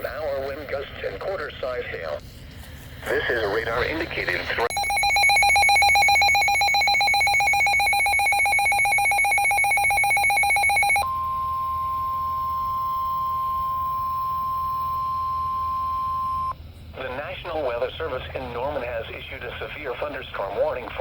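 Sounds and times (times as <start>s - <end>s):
trilling electronic alert tone: 4.7s - 11.0s
steady warning alarm tone: 4.7s - 16.6s.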